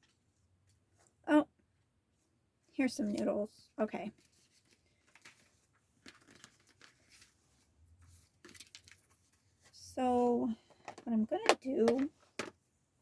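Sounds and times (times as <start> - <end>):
paper sticker sheets rustling: 4.1 - 7.4, 8.1 - 9.4.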